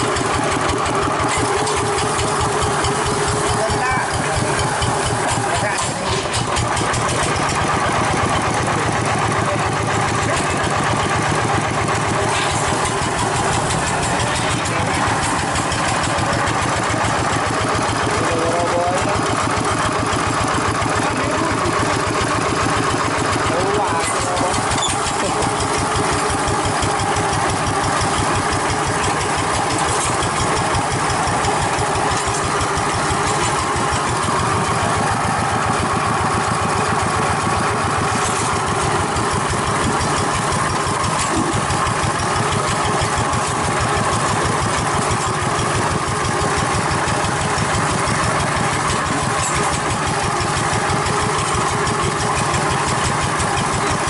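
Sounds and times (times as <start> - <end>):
tractor diesel engine chugging: 0.0 - 54.0.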